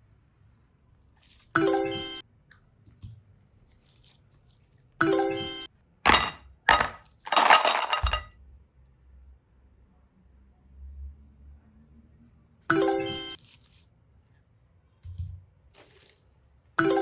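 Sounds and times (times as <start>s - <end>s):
rattling crash: 6.1s - 8.3s.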